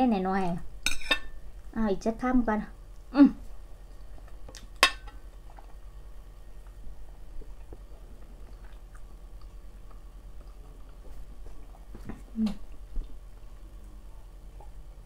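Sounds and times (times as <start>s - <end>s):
person chewing food: 3.8s - 13.9s.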